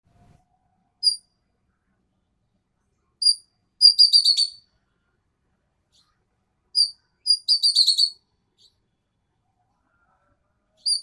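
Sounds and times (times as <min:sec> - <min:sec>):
bird high whistled calls: 0:03.2 - 0:04.6, 0:06.8 - 0:08.7, 0:10.8 - 0:11.0.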